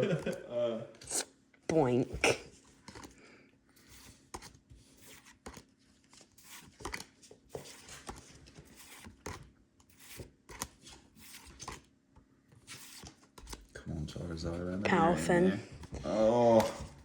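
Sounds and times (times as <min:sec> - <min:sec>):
cards and wrappers rustling: 0:02.5 - 0:11.9, 0:12.6 - 0:13.8.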